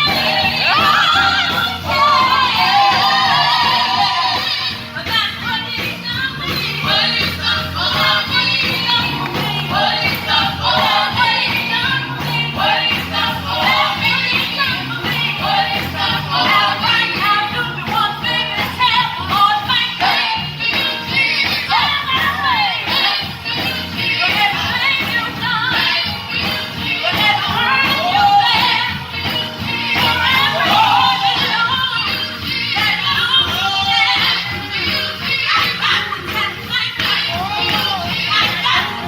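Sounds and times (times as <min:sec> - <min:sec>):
choir singing: 0:00.0 - 0:04.8, 0:06.4 - 0:21.9, 0:29.6 - 0:31.7
band with steady beat: 0:00.0 - 0:39.0.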